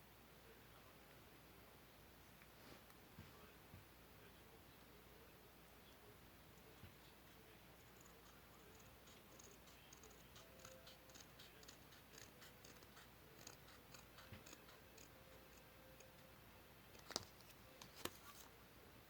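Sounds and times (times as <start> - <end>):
scissors snipping paper: 7.8 - 16.2.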